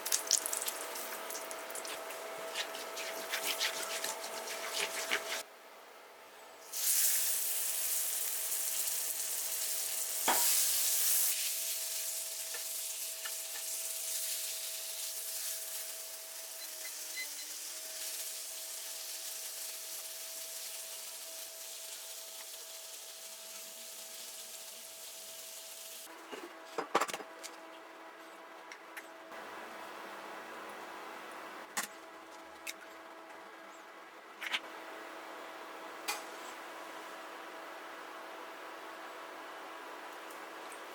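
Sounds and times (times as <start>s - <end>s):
food sizzling in a pan: 0.0s - 5.4s, 6.7s - 26.1s.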